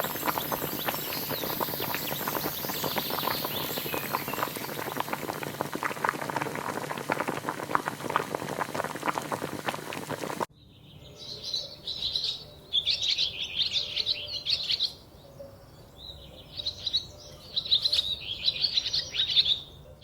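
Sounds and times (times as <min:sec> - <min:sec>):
liquid bubbling at a boil: 0:00.0 - 0:10.5.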